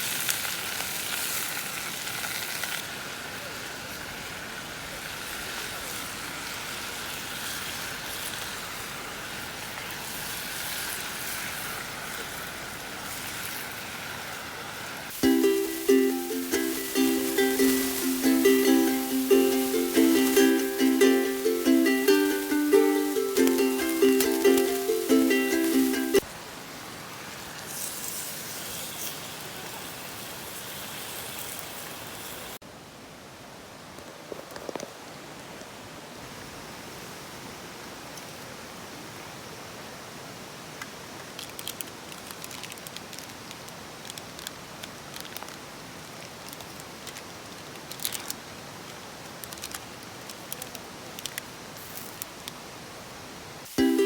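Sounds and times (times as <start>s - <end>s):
food sizzling: 0.0s - 26.3s, 53.6s - 54.0s
steady outdoor hiss: 0.0s - 54.0s
ukulele music: 15.2s - 26.3s, 53.7s - 54.0s.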